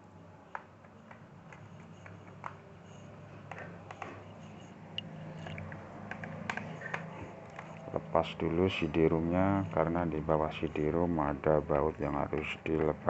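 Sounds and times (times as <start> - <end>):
low steady hum: 0.0 - 13.0
clicks and taps of laptop parts: 0.5 - 2.6, 3.5 - 4.2, 5.0 - 7.8.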